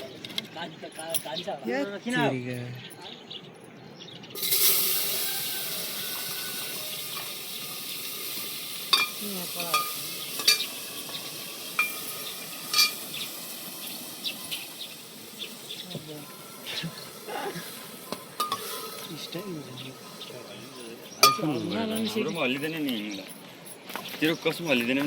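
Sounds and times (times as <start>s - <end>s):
food sizzling in hot oil: 4.4s - 21.5s.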